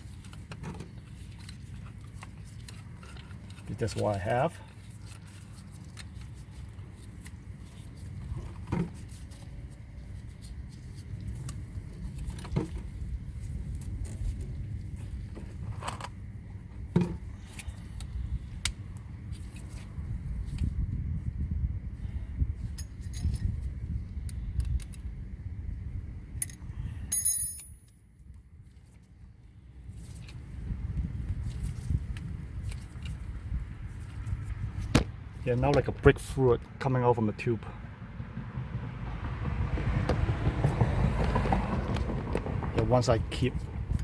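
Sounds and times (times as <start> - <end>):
metal tools clinking: 22.8 - 23.6, 26.4 - 28.0.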